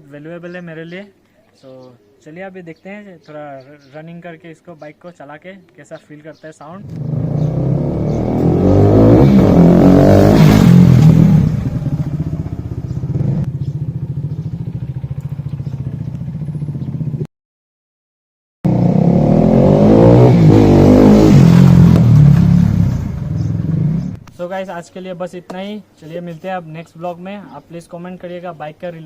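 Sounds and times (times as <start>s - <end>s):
motorcycle engine revving: 6.8s - 17.3s, 18.7s - 24.2s.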